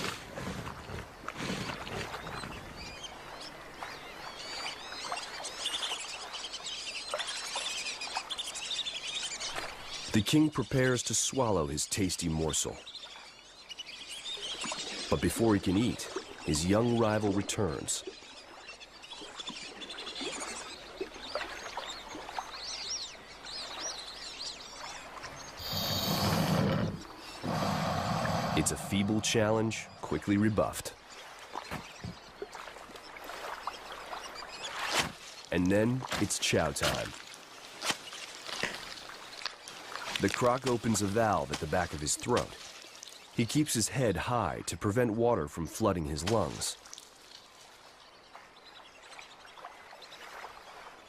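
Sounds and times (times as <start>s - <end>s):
quiet waterside ambience: 0.0s - 51.0s
small birds chirping: 0.7s - 44.8s, 45.9s - 51.0s
loud rushing burst of noise: 25.6s - 29.9s.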